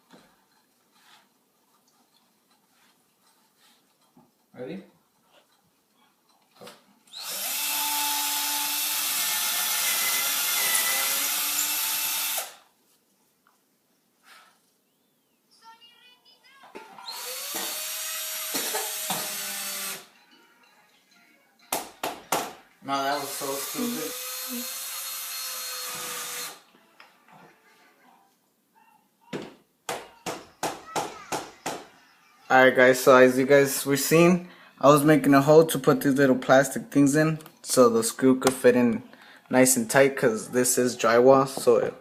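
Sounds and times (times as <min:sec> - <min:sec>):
power drill boring into drywall: 0:07.1 - 0:12.7, 0:17.0 - 0:20.1, 0:23.2 - 0:26.7.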